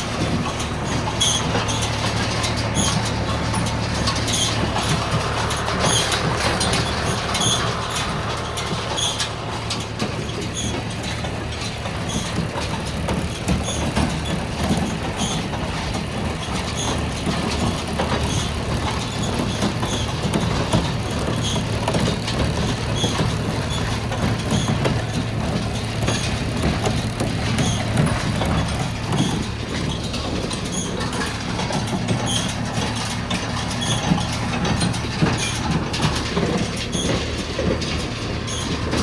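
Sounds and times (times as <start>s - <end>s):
baler mechanical drone: 0.0s - 39.0s.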